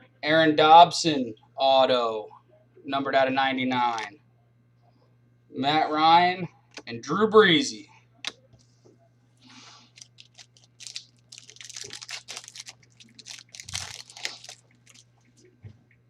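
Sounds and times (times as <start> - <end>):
wrapper crinkling and tearing: 9.8 - 15.1.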